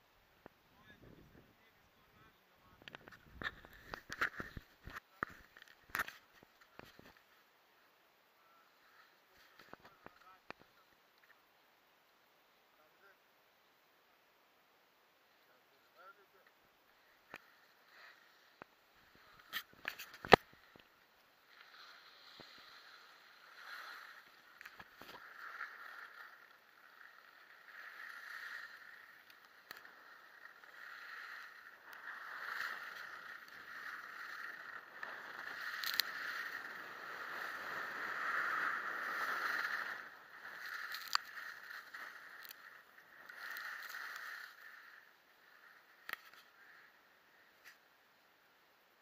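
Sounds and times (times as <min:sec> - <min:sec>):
skis scraping over snow: 0:17.0 - 0:47.8.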